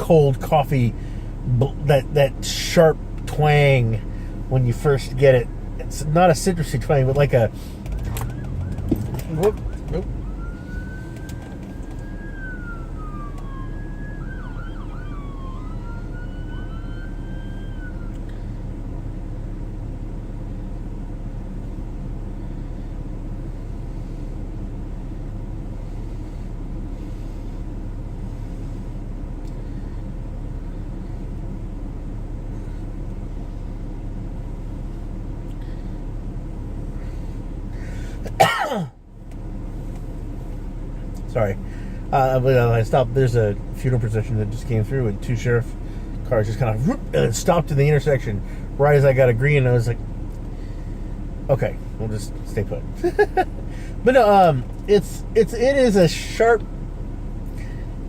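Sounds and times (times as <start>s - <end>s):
idling car hum: 0.0s - 58.0s
police siren wailing: 7.8s - 19.0s.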